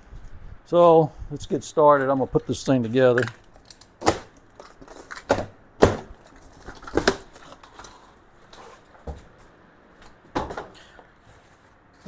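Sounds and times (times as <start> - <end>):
boxed parts knocking and clunking: 2.0 - 8.0, 10.1 - 11.1.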